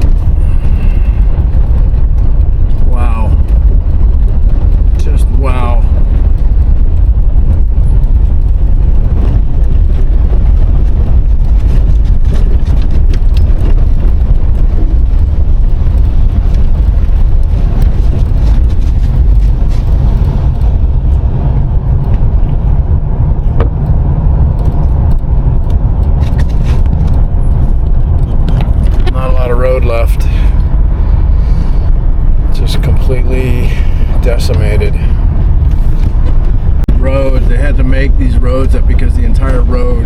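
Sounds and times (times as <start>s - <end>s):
car engine and road rumble: 0.0s - 40.0s.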